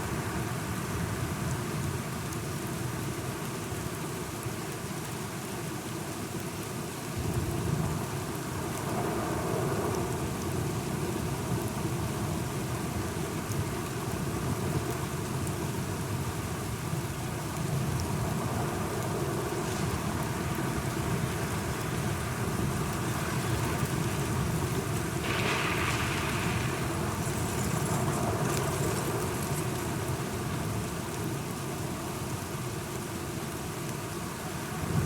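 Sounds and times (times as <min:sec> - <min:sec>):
steady rain falling: 0:00.0 - 0:35.0
thunder rumbling: 0:19.4 - 0:29.6.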